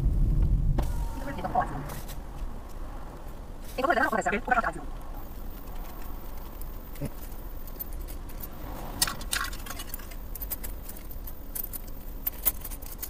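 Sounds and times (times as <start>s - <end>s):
car engine idling: 0.0s - 12.3s
light clicks and rattles: 5.0s - 13.0s.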